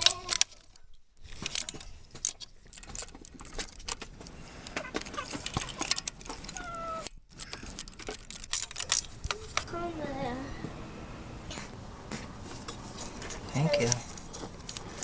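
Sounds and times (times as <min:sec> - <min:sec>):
small metal objects clinking: 0:04.7 - 0:09.2.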